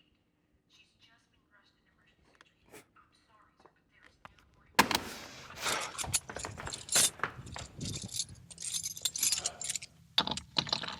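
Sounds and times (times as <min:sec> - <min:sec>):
small hard objects clattering: 0:04.8 - 0:10.9.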